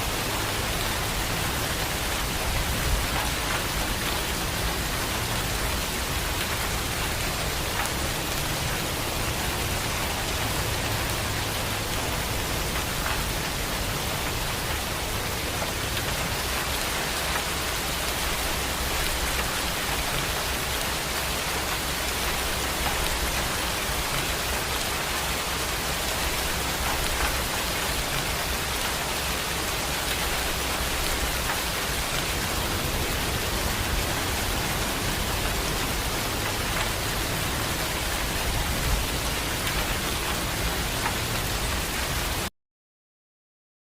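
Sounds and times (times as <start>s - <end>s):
heavy rain falling: 0.0s - 42.5s.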